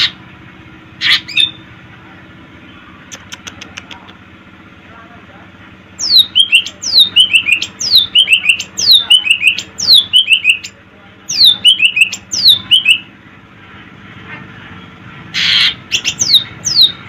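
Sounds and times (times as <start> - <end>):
bird singing whistled phrases: 6.0 - 10.7, 11.3 - 13.1, 15.9 - 17.0.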